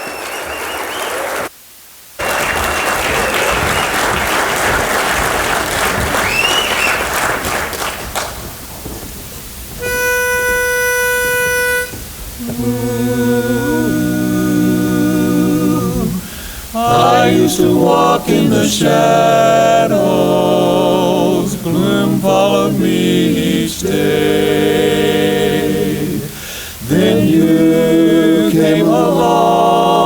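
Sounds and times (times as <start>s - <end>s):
audience applauding: 0.0s - 1.5s, 2.2s - 9.2s
whistles from audience: 0.0s - 1.5s, 2.2s - 8.4s
pitch pipe note: 9.8s - 13.3s
a cappella quartet singing chord: 11.1s - 30.0s.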